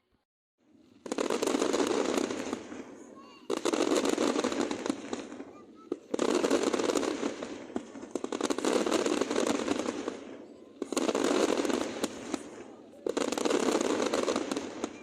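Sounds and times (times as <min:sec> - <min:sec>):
fireworks crackling: 0:00.7 - 0:15.0.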